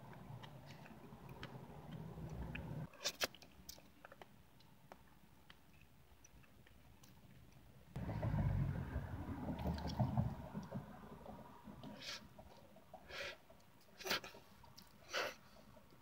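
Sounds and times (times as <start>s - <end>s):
closed-mouth chewing: 0.1s - 7.6s.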